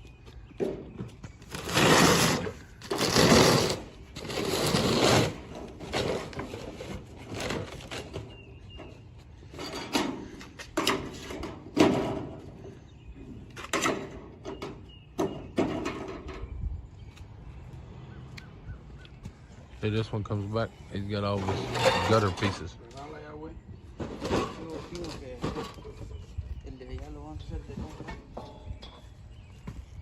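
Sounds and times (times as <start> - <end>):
sheet metal scraping and clattering: 1.5 - 8.4, 21.2 - 23.1, 24.0 - 26.2.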